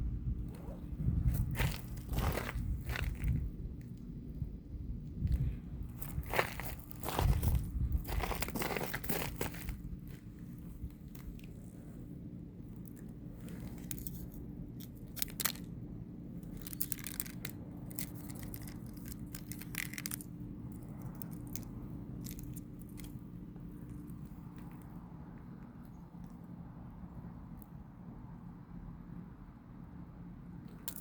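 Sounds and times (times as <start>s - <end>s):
low steady hum: 0.0s - 31.0s
ice crunching and crackling: 1.3s - 3.5s, 6.0s - 11.7s, 12.8s - 15.7s, 16.4s - 23.2s.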